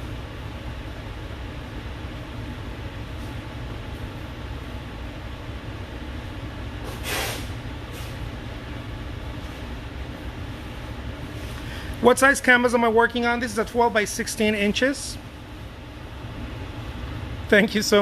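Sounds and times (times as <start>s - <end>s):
short hiss: 6.9s - 8.1s.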